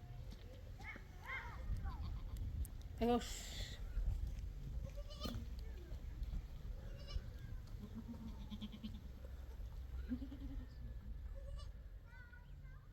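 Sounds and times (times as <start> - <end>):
goats bleating: 7.8 - 9.1, 10.1 - 10.7.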